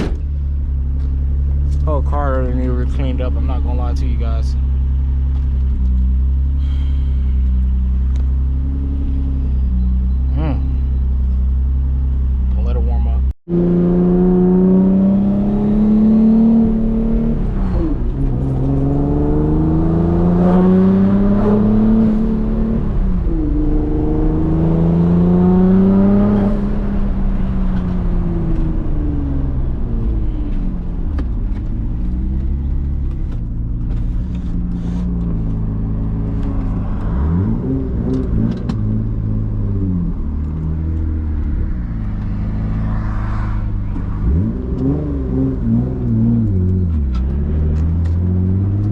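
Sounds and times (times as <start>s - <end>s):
car engine revving: 13.5s - 48.9s.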